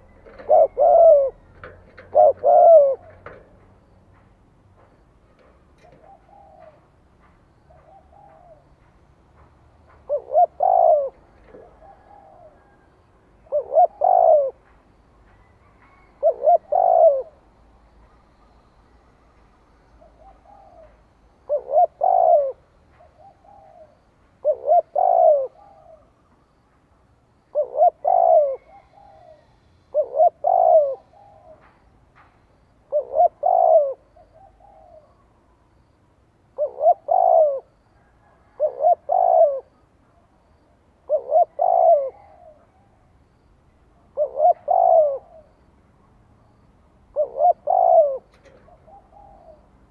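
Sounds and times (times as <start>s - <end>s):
dove cooing: 0.0s - 4.2s, 4.8s - 7.0s, 9.8s - 14.7s, 15.4s - 17.5s, 20.0s - 26.1s, 27.5s - 31.7s, 32.9s - 35.4s, 36.5s - 40.0s, 41.0s - 45.7s, 47.1s - 49.9s.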